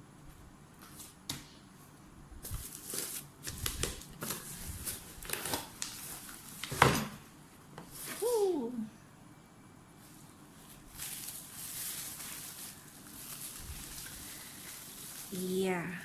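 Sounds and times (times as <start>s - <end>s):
cardboard packaging scraping and rustling: 2.4s - 7.1s, 10.7s - 15.6s.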